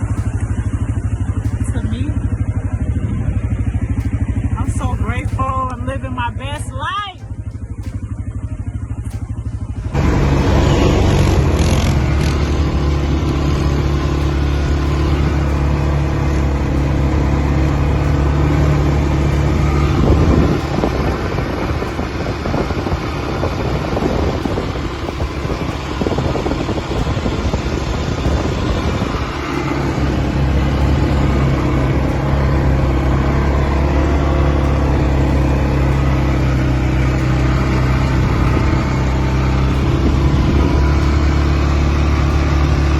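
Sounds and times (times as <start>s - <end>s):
atv engine running: 0.0s - 42.9s.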